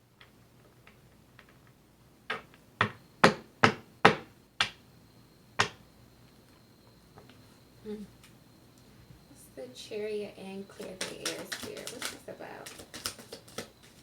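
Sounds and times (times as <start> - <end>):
sharp knocks on hard surface: 2.3 - 4.8, 5.6 - 5.8.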